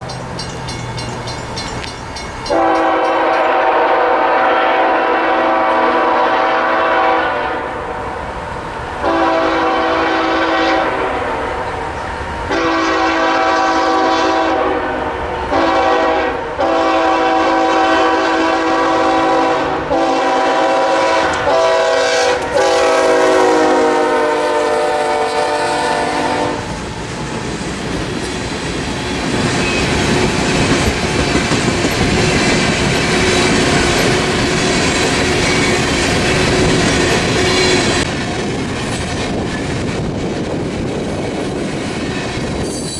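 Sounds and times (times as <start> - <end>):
train rumbling on rails: 0.0 - 42.9
locomotive air horn blasts: 2.5 - 8.2, 9.0 - 11.8, 12.5 - 26.7.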